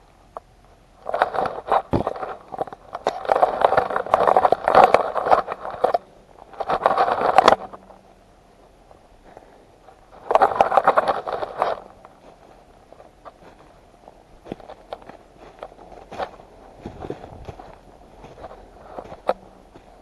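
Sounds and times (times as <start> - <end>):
footsteps through dry leaves: 14.4 - 20.0.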